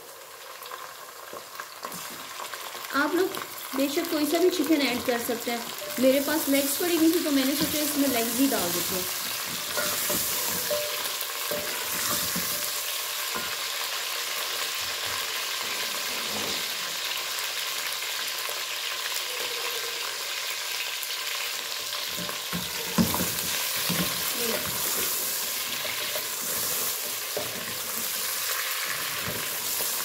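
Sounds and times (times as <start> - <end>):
chicken frying in hot oil: 0.0 - 30.0
wooden spatula scraping a pot: 5.7 - 13.6, 22.2 - 30.0.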